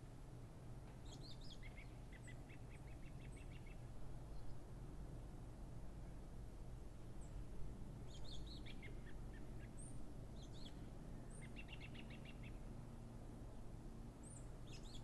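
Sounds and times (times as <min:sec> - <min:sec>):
low background noise: 0:00.0 - 0:15.0
small birds chirping: 0:01.0 - 0:04.6, 0:08.0 - 0:12.7, 0:14.2 - 0:15.0.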